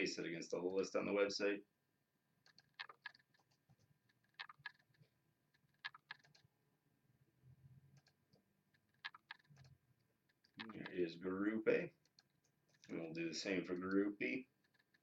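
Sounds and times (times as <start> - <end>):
computer mouse clicks: 2.4 - 6.5, 7.9 - 11.0, 12.0 - 15.0
keyboard clicks: 2.4 - 6.5, 7.9 - 11.0, 12.0 - 15.0.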